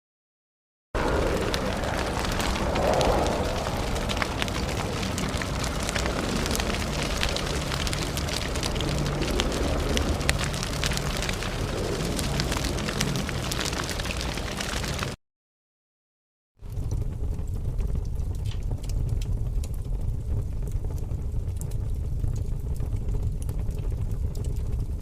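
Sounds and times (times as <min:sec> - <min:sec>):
torch flame rushing and crackling: 0:01.0 - 0:15.2.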